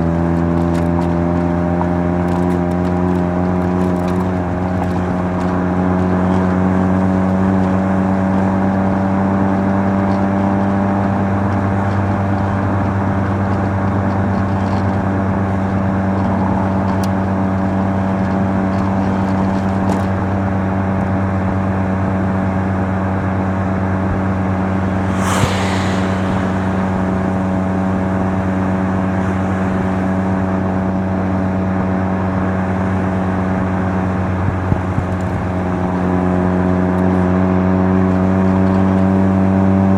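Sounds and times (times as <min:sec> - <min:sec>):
rotary engine cruising: 0:00.0 - 0:39.9
brief hiss: 0:24.7 - 0:28.3.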